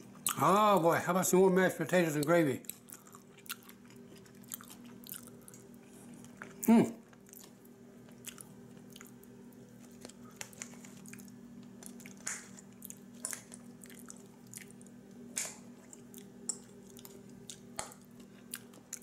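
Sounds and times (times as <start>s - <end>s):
man chewing soft food: 2.6s - 19.0s.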